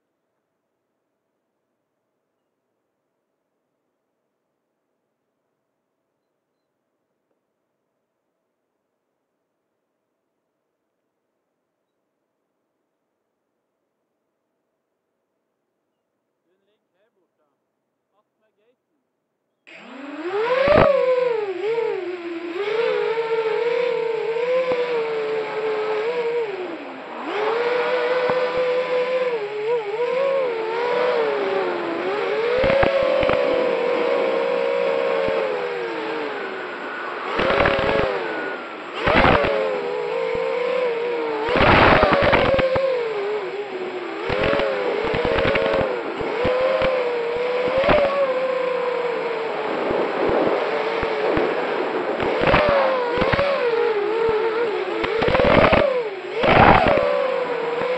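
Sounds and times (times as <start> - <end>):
quadcopter motors whining: 19.7 - 57.9.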